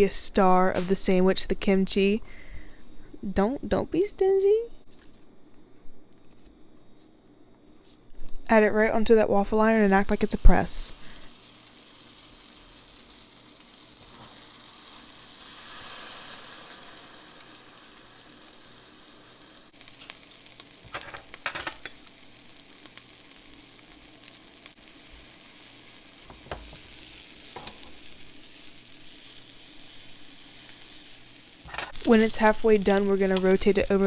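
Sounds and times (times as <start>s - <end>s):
sandwich sizzling in waffle iron: 9.6s - 34.0s.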